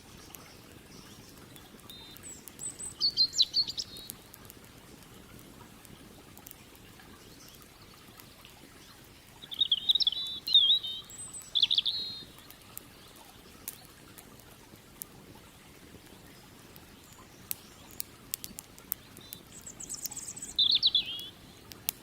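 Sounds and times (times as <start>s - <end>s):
songbird warbling: 0.0s - 4.3s, 8.8s - 13.2s, 17.0s - 21.7s
campfire crackles: 0.0s - 22.0s.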